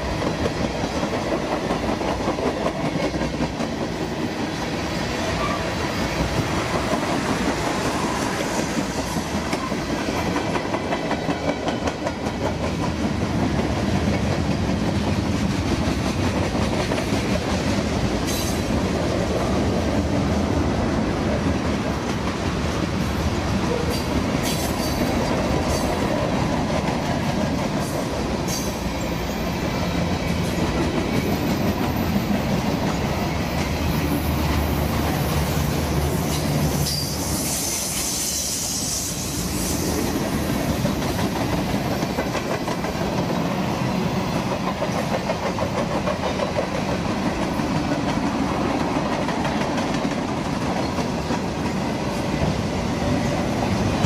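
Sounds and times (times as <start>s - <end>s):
high hiss: 36.1s - 41.1s
train wheels clattering over rail joints: 40.4s - 52.6s.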